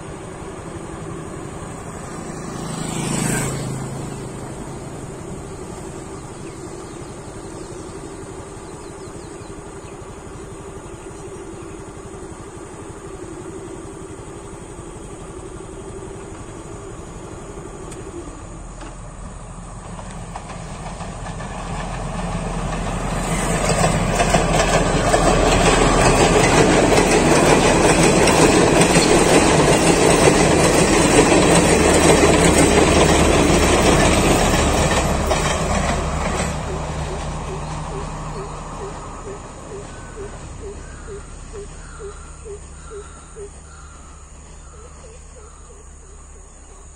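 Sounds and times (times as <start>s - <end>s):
diesel train engine hum: 0.0s - 46.9s
distant train rumble: 0.0s - 46.9s
wheels clattering over rail joints: 17.9s - 41.1s.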